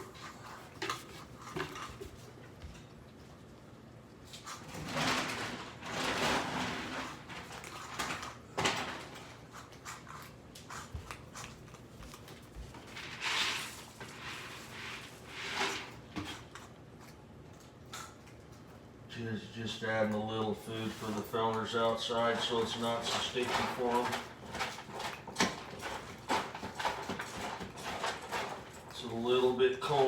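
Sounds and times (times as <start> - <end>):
bowls scraping on counter: 12.9 - 16.6.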